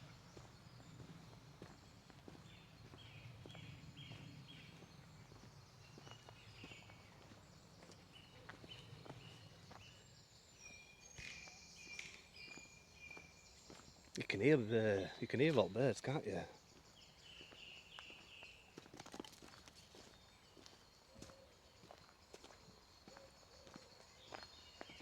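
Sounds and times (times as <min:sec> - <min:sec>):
birds chirping: 0:00.0 - 0:25.0
soft footsteps on a path: 0:00.0 - 0:25.0.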